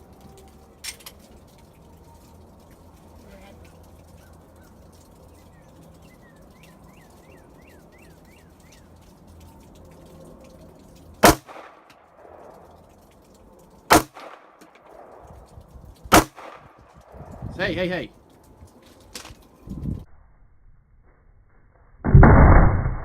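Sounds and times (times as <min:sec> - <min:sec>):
pistol shots with echo: 0:11.2 - 0:12.6, 0:13.9 - 0:15.3, 0:16.1 - 0:16.8.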